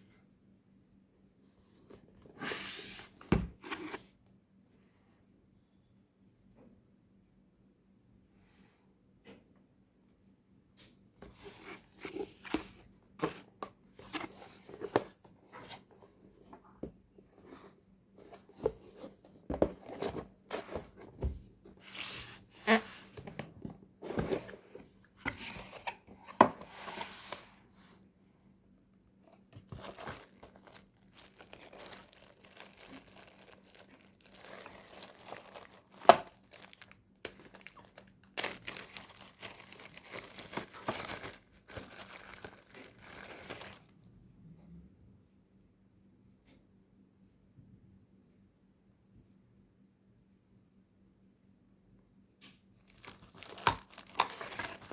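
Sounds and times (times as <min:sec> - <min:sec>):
packaging crinkling and tearing: 0:29.6 - 0:43.9, 0:52.9 - 0:54.9.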